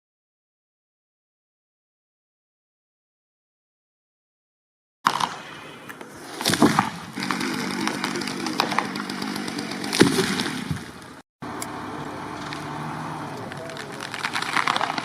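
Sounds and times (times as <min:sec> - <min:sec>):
chainsaw running: 0:07.2 - 0:10.7.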